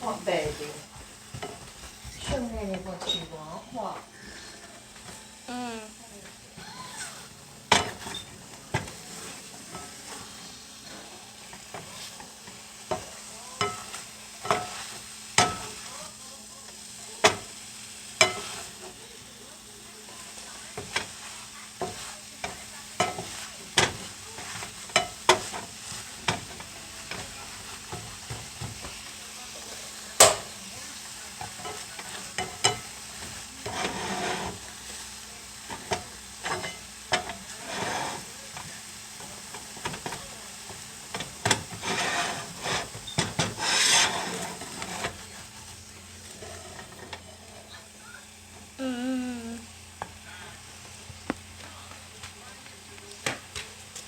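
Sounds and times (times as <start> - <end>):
food sizzling in a pan: 0.0 - 54.0
utensil knocking against a pan: 30.2 - 30.5.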